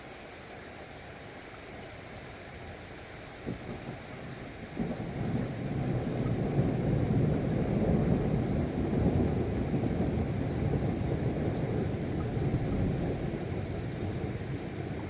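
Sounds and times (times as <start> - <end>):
rain: 0.0 - 15.0
rolling thunder rumble: 4.8 - 15.0.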